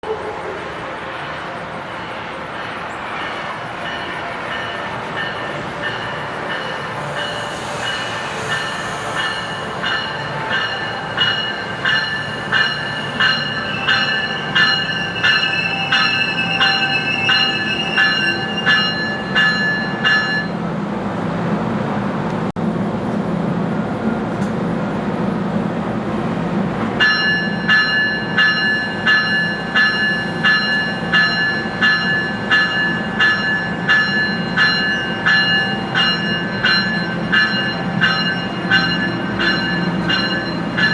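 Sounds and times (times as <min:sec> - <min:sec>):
ringing wheel squeal: 0:07.2 - 0:20.4
train wheels clacking: 0:26.8 - 0:40.9.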